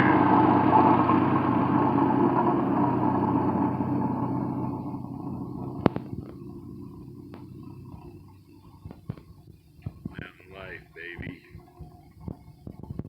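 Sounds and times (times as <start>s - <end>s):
engine running: 0.0s - 12.3s.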